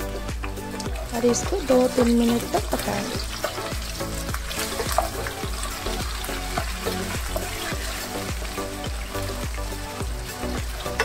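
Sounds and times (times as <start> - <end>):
background music with beat: 0.0 - 11.0
potatoes sizzling in hot oil: 0.0 - 11.0
spatula stirring and tapping: 0.3 - 9.0.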